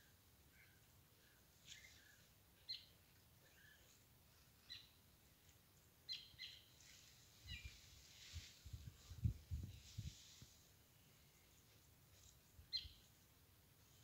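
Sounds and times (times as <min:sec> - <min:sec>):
faint bird chirps: 0:00.0 - 0:05.0, 0:06.0 - 0:08.4, 0:11.0 - 0:13.2.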